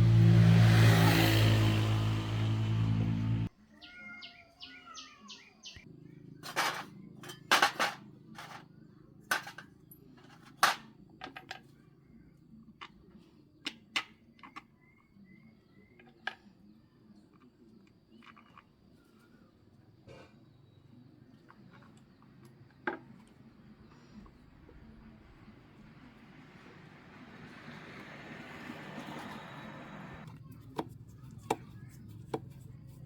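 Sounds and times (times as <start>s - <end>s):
birds chirping: 3.8s - 7.2s, 20.6s - 30.2s.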